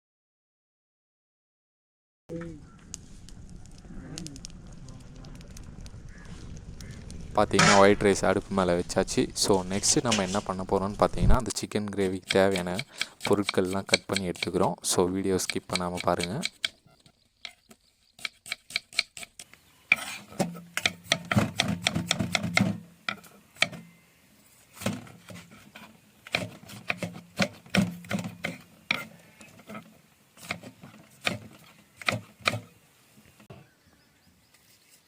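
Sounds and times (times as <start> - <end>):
low hum: 2.3 - 11.5
knife chopping onions: 9.4 - 16.8, 18.2 - 22.8.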